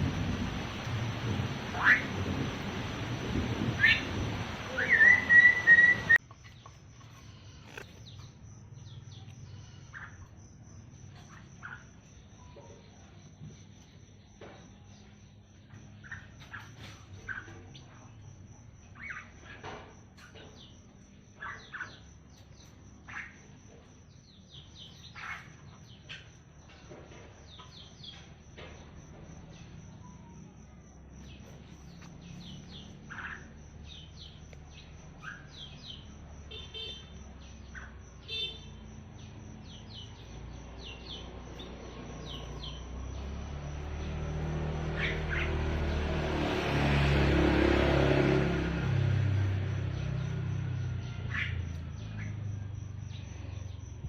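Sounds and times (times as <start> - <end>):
low rumble: 0.0 - 6.2
starling chirping and squawking: 1.7 - 2.2, 3.7 - 6.2, 44.8 - 45.8.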